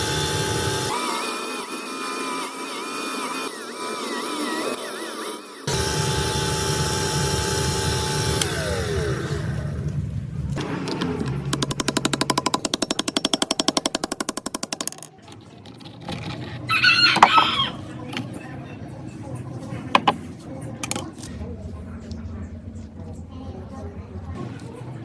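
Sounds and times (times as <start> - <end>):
rapid impact tool hammering: 0.0 - 0.9, 5.7 - 9.4, 10.6 - 15.1
power tool winding down: 0.0 - 9.8, 10.7 - 15.0
rooster crowing: 16.7 - 17.9.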